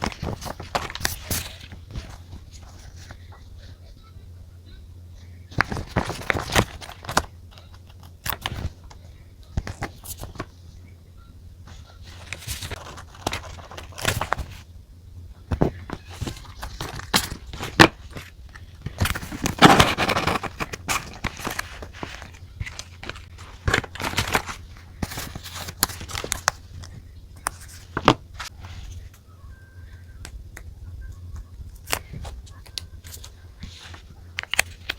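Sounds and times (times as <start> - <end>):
paper crinkling rustle: 0.0 - 3.7, 5.5 - 8.9, 11.7 - 14.6, 15.5 - 29.2, 31.7 - 34.9
paper and pen clicks and taps: 15.5 - 28.5.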